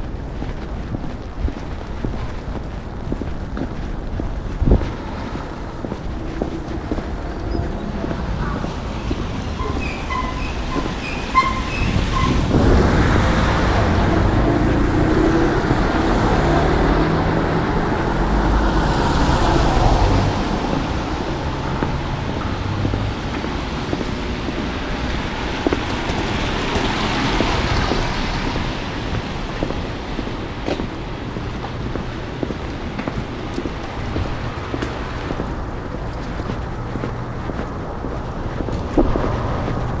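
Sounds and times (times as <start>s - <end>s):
street traffic rumble: 0.0s - 40.0s
vehicle passing close by: 6.0s - 30.6s.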